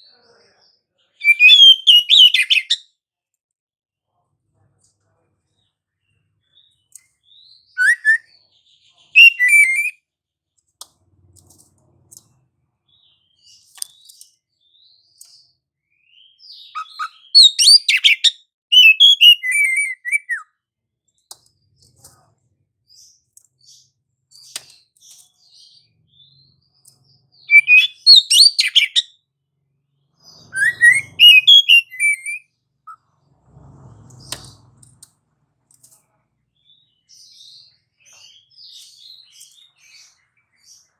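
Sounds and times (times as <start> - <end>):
bird singing whistles and chirps: 1.0 - 2.8, 6.6 - 10.0, 12.9 - 20.5, 25.4 - 29.2, 30.2 - 33.0.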